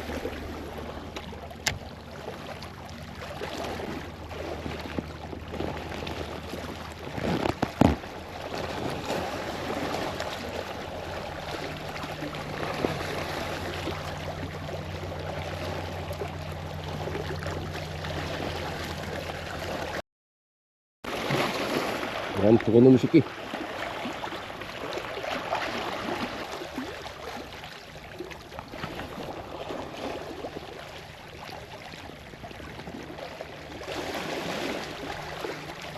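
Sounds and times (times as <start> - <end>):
low steady hum: 0.0 - 20.0, 23.2 - 35.9
water lapping around boat: 0.0 - 20.0, 21.0 - 35.9.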